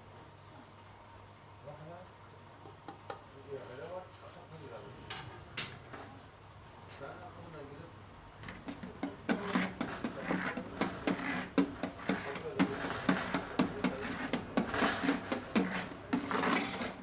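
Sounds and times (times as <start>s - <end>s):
sharp knocks: 8.6s - 17.0s.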